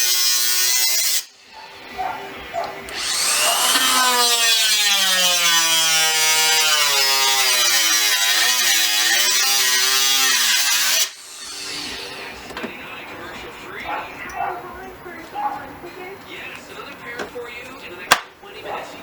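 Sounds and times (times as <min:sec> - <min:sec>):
power tool cutting metal: 0:00.0 - 0:01.4, 0:02.9 - 0:12.4.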